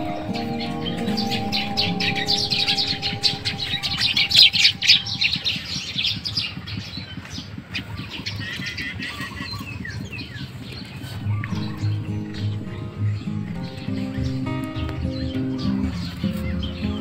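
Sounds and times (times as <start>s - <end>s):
held note of background music: 0.0s - 6.2s, 11.2s - 16.2s
birds chirping: 0.0s - 17.0s.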